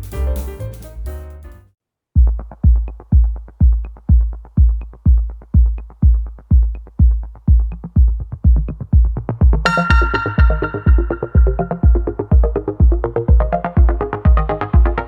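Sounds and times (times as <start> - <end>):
heavy deep kick drum: 2.2 - 15.0
electronic dance music: 2.3 - 15.0.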